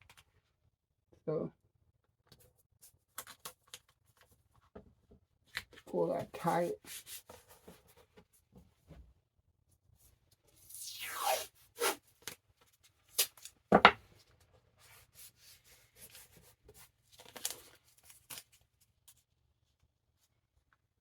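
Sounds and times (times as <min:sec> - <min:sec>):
tape rubbing on book: 0:06.6 - 0:07.6, 0:10.6 - 0:12.4
tape tearing off roll: 0:10.7 - 0:12.0.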